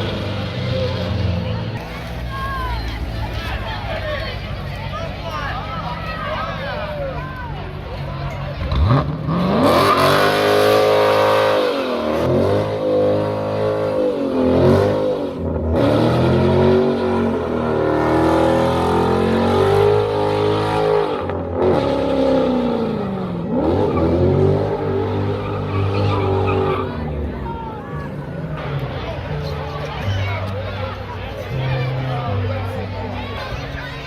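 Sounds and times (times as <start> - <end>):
car engine revving: 8.5 - 30.0.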